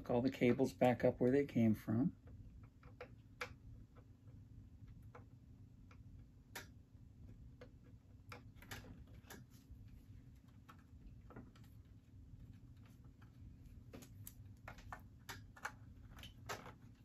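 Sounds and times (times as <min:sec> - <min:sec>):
low steady hum: 0:00.0 - 0:17.0
cable connectors clicking plastic: 0:02.2 - 0:09.6, 0:13.9 - 0:17.0.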